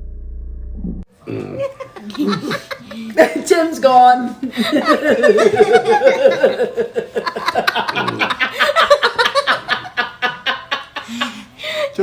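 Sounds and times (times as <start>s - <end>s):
hearty laughter: 1.3s - 3.4s, 4.4s - 11.9s.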